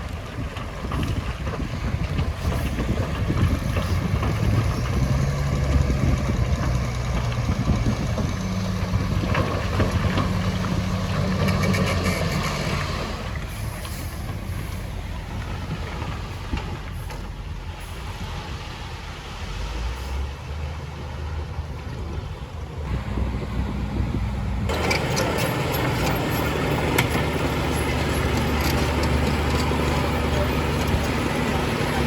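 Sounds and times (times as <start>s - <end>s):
heavy machinery diesel engines: 0.0s - 32.0s
machinery clatter: 24.6s - 32.0s.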